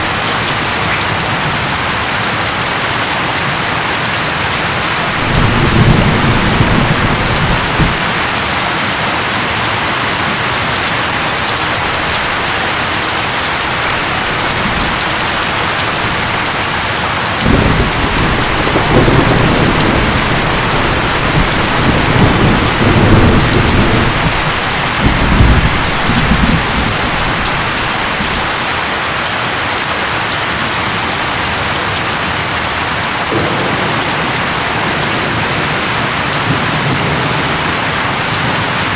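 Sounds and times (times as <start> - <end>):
heavy rain: 0.0 - 38.9
thunder rumbling: 4.3 - 28.6, 33.3 - 38.9.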